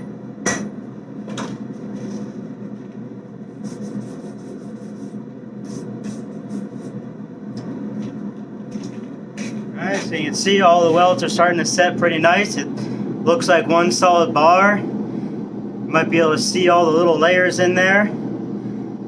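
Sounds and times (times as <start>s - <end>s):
hammer striking hot metal: 0.0s - 0.8s
steady low hum: 0.0s - 19.0s.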